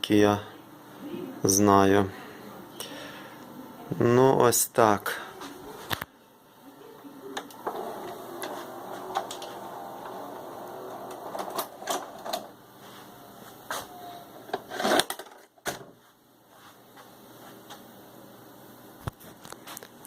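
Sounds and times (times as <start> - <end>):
faint whir: 5.1 - 14.9.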